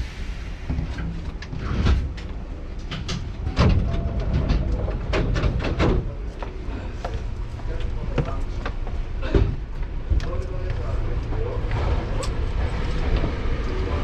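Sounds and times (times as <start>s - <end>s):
train running low rumble: 0.0s - 14.0s
clicks and knocks from wheels: 0.9s - 6.4s.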